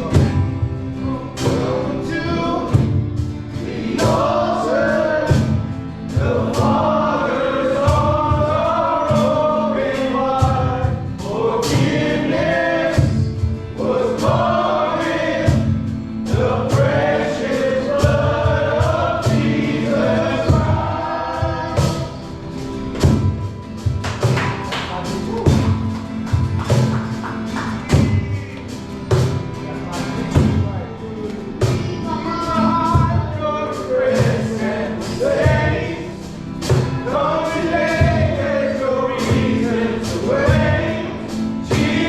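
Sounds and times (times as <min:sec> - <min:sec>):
band accompaniment: 0:00.0 - 0:42.0
group of voices singing gospel: 0:00.0 - 0:42.0
regular beats: 0:05.2 - 0:33.4.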